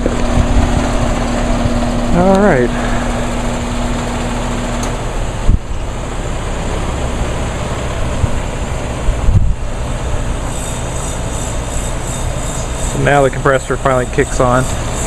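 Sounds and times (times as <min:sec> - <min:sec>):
wind buffeting microphone: 0:00.0 - 0:03.9, 0:05.2 - 0:06.0, 0:07.2 - 0:10.4
outdoor rumble: 0:00.0 - 0:15.0.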